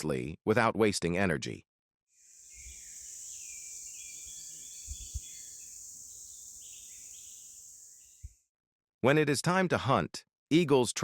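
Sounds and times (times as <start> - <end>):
high insect drone: 2.2 - 8.4
small birds chirping: 2.2 - 8.4.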